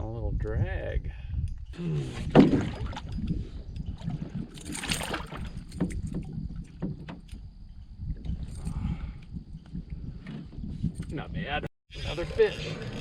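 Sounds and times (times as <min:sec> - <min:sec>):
knocks against canoe hull: 0:05.8 - 0:07.4.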